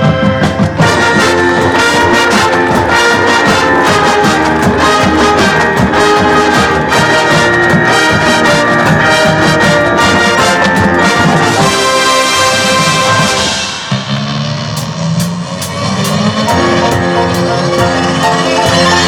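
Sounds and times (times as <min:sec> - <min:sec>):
percussion hits: 0:00.0 - 0:19.0
brass playing sustained chords: 0:00.5 - 0:15.5, 0:16.3 - 0:19.0.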